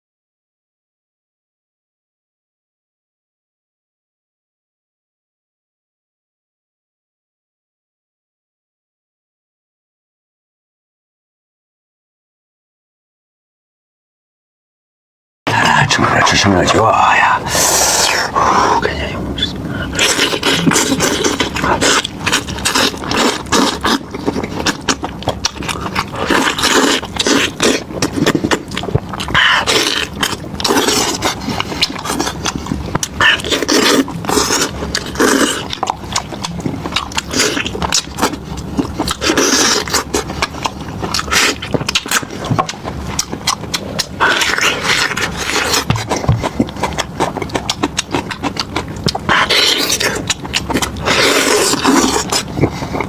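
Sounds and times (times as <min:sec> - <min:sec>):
wet chewing and smacking: 0:19.8 - 0:53.0.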